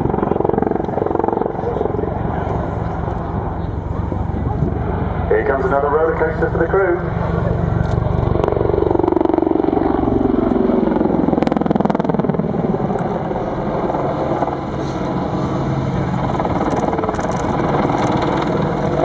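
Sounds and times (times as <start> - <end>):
helicopter engines and rotor: 0.0 - 19.0.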